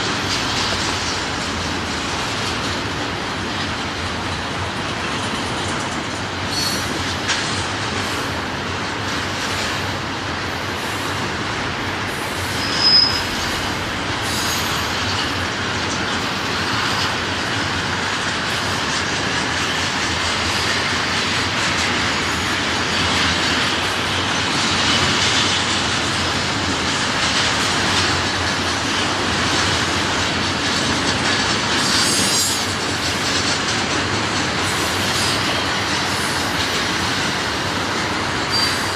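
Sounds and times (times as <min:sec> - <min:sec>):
train wheels rumbling and clattering: 0:00.0 - 0:38.9
wheel squealing: 0:12.5 - 0:14.8.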